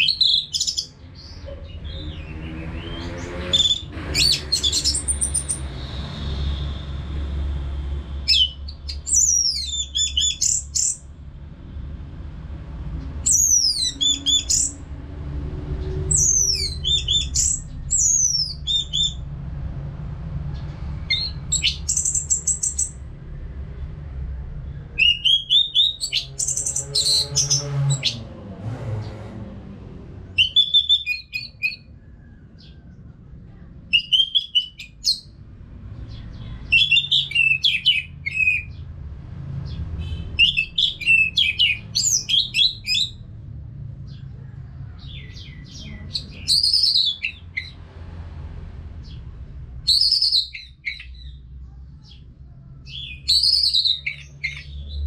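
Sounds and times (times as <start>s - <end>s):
thrush whistled song: 30.4s - 31.9s.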